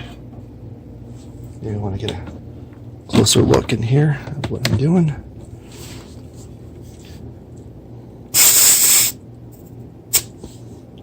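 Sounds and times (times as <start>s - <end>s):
compressed air hissing from valve: 8.3s - 9.2s.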